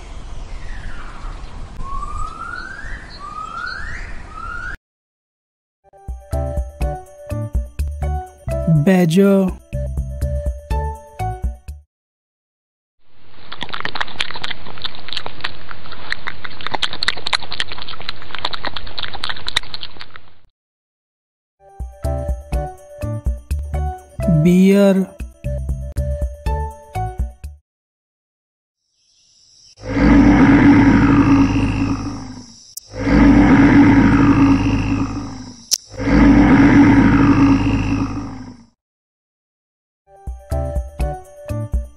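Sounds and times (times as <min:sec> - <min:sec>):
bear roaring: 0:29.8 - 0:38.8.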